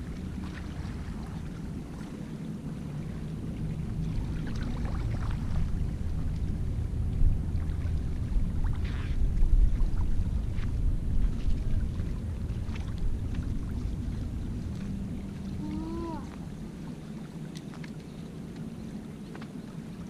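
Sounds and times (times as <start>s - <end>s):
boat motor rumbling: 0.0s - 20.0s.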